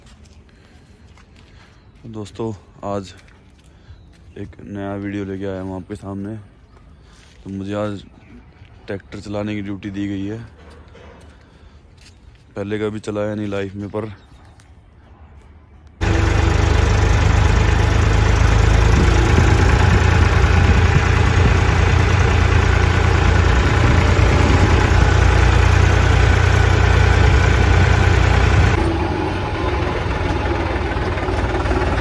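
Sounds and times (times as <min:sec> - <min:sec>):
tractor diesel engine running: 0:16.0 - 0:32.0.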